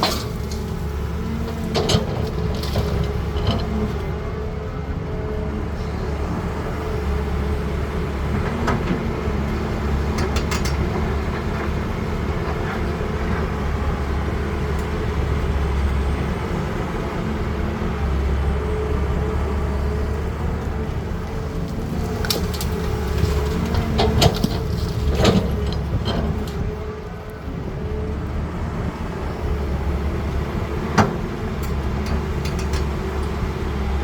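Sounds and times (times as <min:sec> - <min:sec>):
metallic clanks: 0:00.0 - 0:00.8
excavator diesel engine rumbling: 0:00.0 - 0:34.0.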